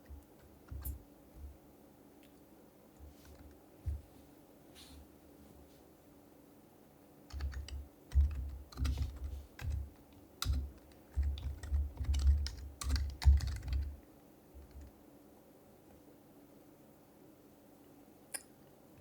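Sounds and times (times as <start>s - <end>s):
keyboard typing: 0.0s - 1.0s, 7.3s - 14.0s.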